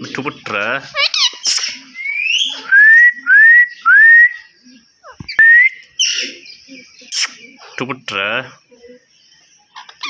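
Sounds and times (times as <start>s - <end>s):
parrot chirps: 0.9s - 2.6s, 7.0s - 7.5s.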